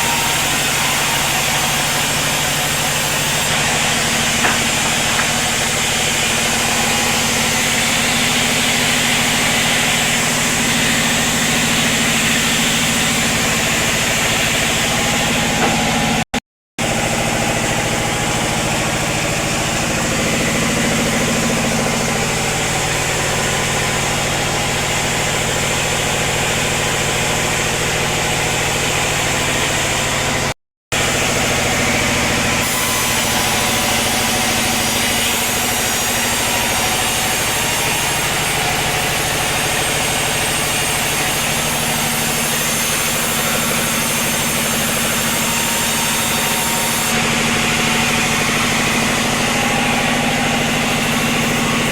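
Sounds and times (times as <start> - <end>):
sawmill machinery drone: 0.0 - 51.9.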